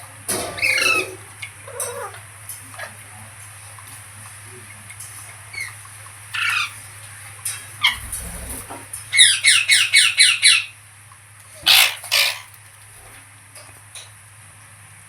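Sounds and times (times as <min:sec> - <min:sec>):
parrot screeching: 0:00.6 - 0:02.2, 0:05.6 - 0:06.8, 0:07.8 - 0:10.7, 0:11.6 - 0:12.6
parrot squawking: 0:00.6 - 0:02.2, 0:05.5 - 0:06.8, 0:07.8 - 0:10.7, 0:11.6 - 0:12.6.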